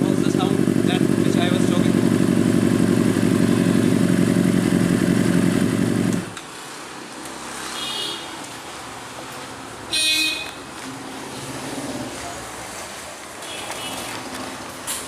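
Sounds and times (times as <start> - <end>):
motorcycle engine running: 0.0 - 6.4.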